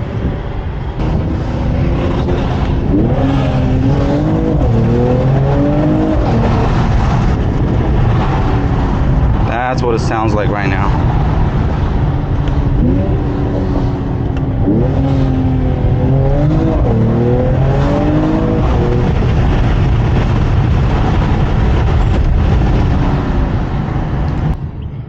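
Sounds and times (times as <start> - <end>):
road noise: 0.0 - 25.0
car engine accelerating: 0.1 - 24.7.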